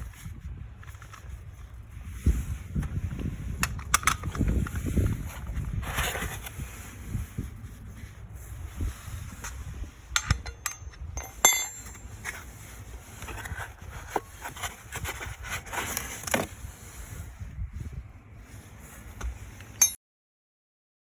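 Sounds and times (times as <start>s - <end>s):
wind rumble on microphone: 0.0s - 19.8s
metal tools clinking and knocking: 10.1s - 12.4s, 19.7s - 20.0s.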